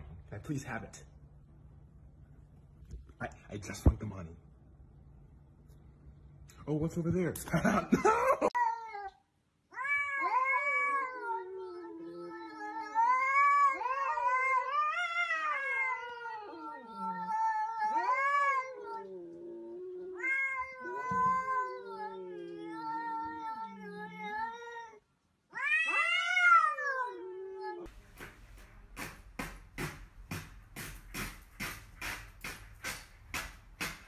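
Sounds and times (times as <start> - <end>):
cats yowling: 9.7 - 27.9.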